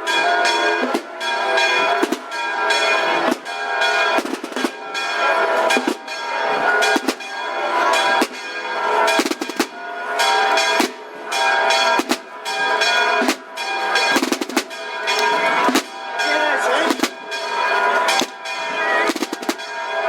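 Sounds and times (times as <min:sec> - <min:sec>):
snare and bass drums: 0:09.2 - 0:09.8, 0:14.2 - 0:14.8, 0:19.1 - 0:19.6.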